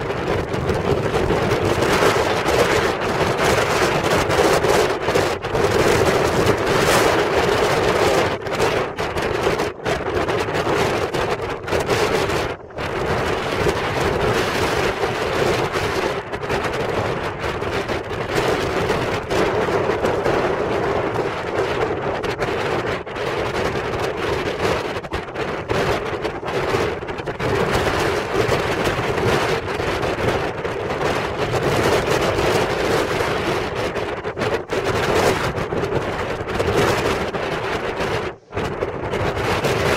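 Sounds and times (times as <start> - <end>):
heavy surf roaring: 0.0 - 39.9
wind buffeting microphone: 0.0 - 39.9.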